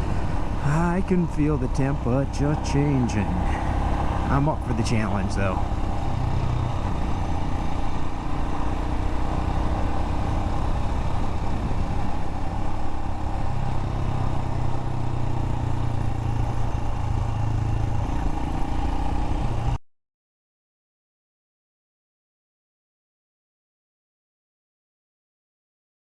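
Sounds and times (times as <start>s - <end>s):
motorcycle engine running: 0.0s - 19.8s
wind and road noise: 0.0s - 19.8s.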